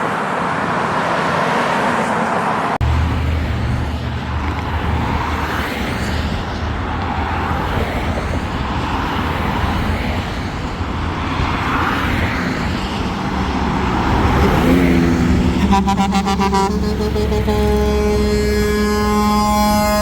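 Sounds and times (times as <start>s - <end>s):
trucks rumbling on road: 0.0s - 20.0s
truck horn blasts: 14.4s - 20.0s.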